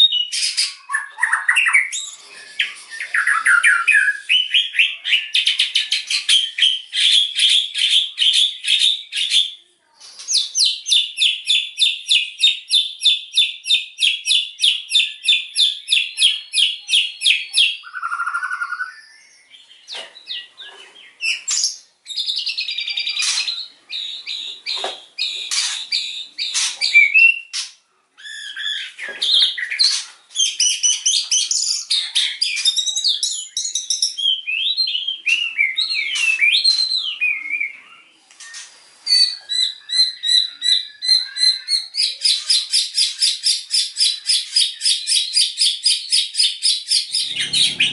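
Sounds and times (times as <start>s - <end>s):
songbird singing: 0.0s - 47.9s.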